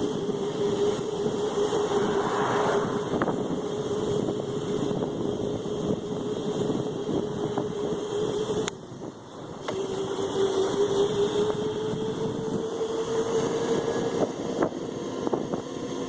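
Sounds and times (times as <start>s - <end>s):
wind on microphone: 0.0s - 9.2s
rough ride noise: 0.0s - 9.9s
electric motor whining: 0.0s - 15.5s.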